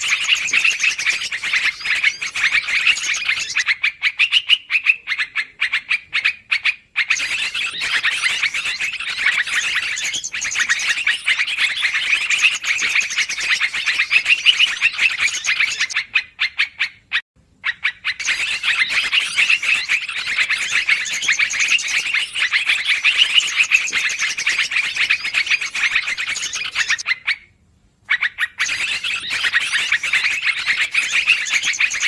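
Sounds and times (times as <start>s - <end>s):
bulbuls chattering: 0.0s - 3.7s, 7.0s - 16.0s, 18.2s - 27.0s.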